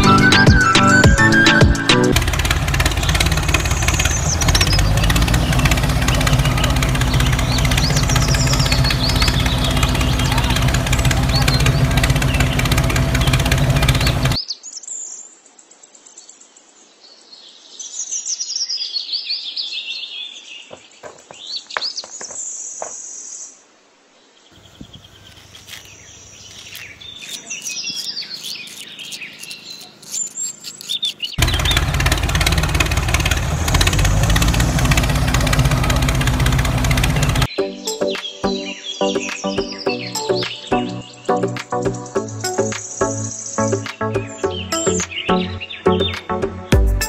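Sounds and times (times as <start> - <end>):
loud steady noise: 0.0 - 14.4, 31.4 - 37.5
birds chirping: 0.0 - 15.2, 17.6 - 23.6, 24.3 - 46.8
light clicks and scrapes: 25.2 - 31.4.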